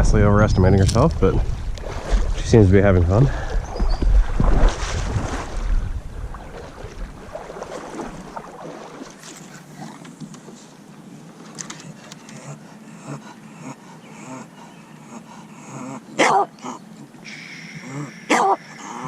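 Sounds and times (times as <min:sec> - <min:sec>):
dog barking: 0:16.2 - 0:16.5, 0:18.3 - 0:18.7.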